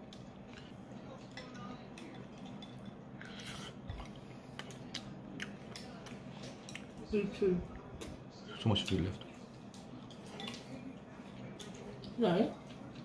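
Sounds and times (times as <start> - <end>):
wet chewing clicks and smacks: 3.9 - 7.0.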